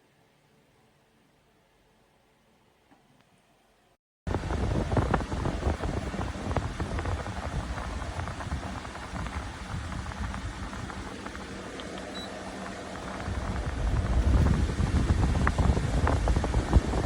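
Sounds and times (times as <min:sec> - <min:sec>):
air conditioner air rush: 0:04.3 - 0:17.0.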